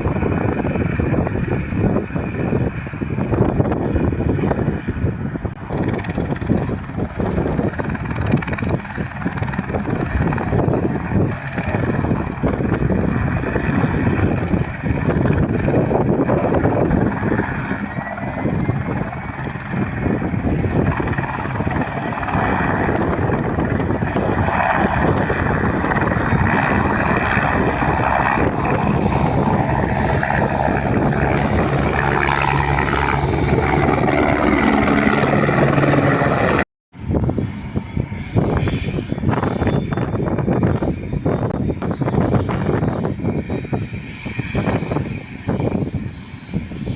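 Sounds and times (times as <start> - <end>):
helicopter rotor beating: 0.0 - 46.9
thin rising whine: 15.8 - 42.9.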